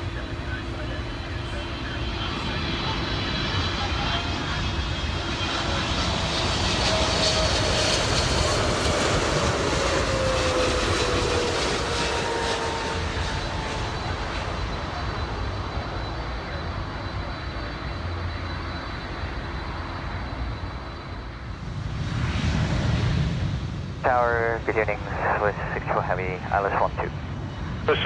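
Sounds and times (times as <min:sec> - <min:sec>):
jet airliner passing: 0:00.0 - 0:28.0.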